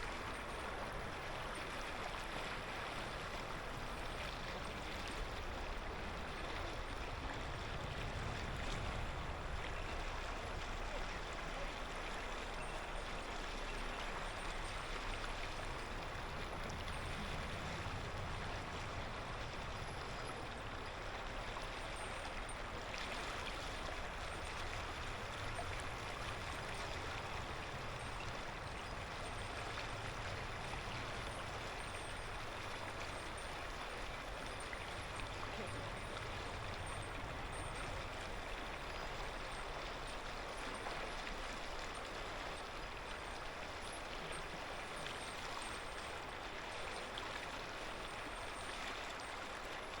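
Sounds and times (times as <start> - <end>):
river flowing over stones: 0.0 - 50.0.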